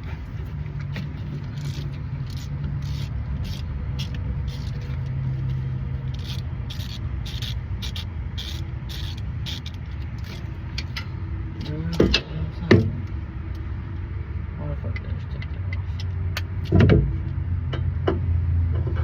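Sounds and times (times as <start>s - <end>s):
ratchet clicking: 0.0s - 12.2s
steady low rumble: 0.0s - 19.0s.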